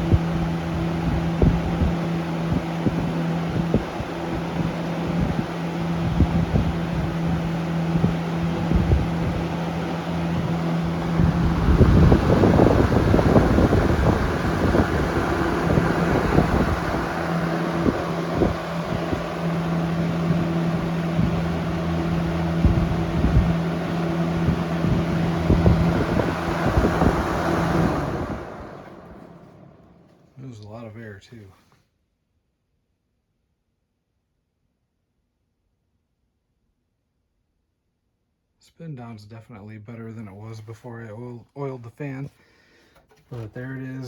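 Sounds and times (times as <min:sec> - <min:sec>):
fan motor hum: 0:00.0 - 0:31.2, 0:42.6 - 0:44.0
fan airflow buffeting microphone: 0:00.0 - 0:31.6, 0:42.9 - 0:44.0.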